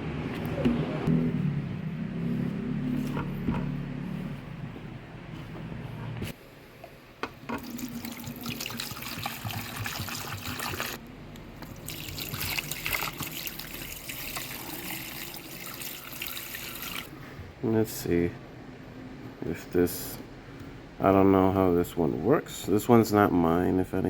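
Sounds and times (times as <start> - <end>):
water running and splashing: 7.6 - 11.0, 11.6 - 17.1.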